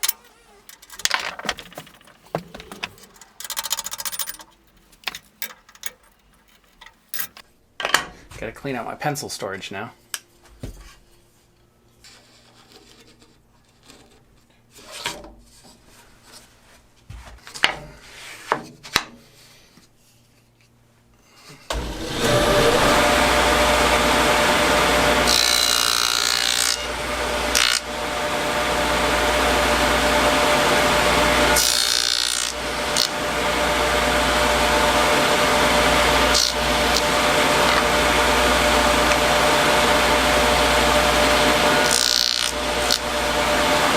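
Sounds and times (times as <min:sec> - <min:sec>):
handling knocks and clicks: 0:00.0 - 0:07.4
power tool cutting wood: 0:21.7 - 0:43.9.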